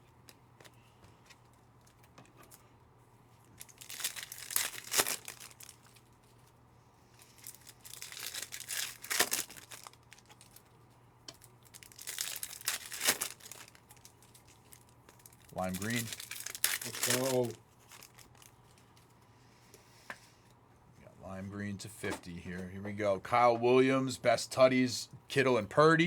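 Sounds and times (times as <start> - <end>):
wrappers tearing and crinkling: 3.4 - 6.6, 7.2 - 10.8, 11.4 - 19.1.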